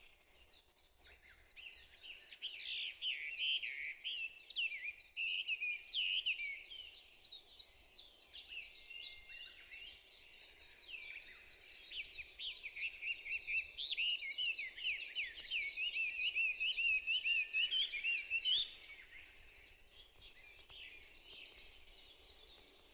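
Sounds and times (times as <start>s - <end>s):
songbirds singing: 0.0s - 22.9s.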